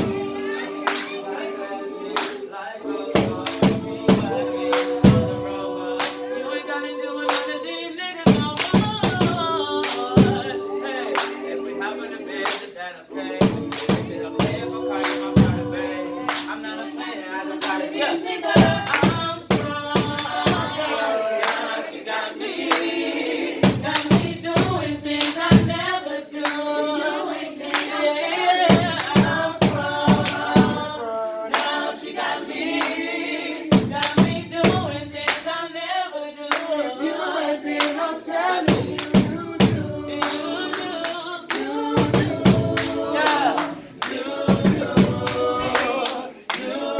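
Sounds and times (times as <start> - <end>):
vocal group singing in harmony: 0.0 - 46.9
sharp hand claps: 0.8 - 1.2, 2.2 - 2.5, 3.2 - 5.3, 6.0 - 6.4, 7.3 - 7.6, 8.3 - 10.4, 11.1 - 11.4, 12.4 - 12.7, 13.4 - 15.6, 16.2 - 16.6, 18.6 - 20.8, 21.4 - 21.8, 23.6 - 26.6, 27.6 - 28.0, 28.7 - 31.9, 32.7 - 33.0, 33.7 - 35.5, 36.5 - 36.8, 37.8 - 38.0, 38.6 - 46.8.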